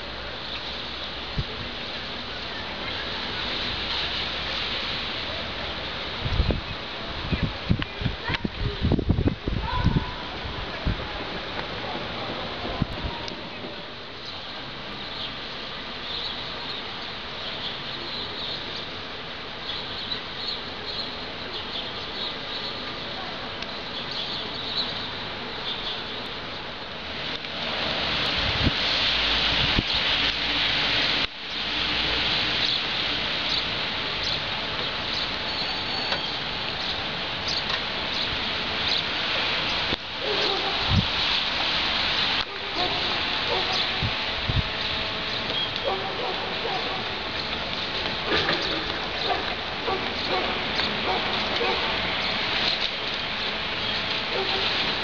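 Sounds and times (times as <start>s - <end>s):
rain: 0.0s - 55.0s
wind: 0.0s - 55.0s
small birds chirping: 13.5s - 26.3s, 32.6s - 40.0s, 42.8s - 54.6s.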